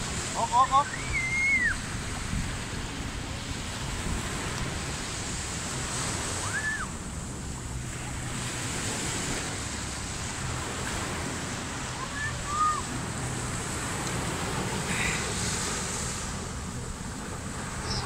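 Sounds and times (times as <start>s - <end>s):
ocean surf washing onto beach: 0.0s - 18.0s
wind buffeting microphone: 0.0s - 18.0s.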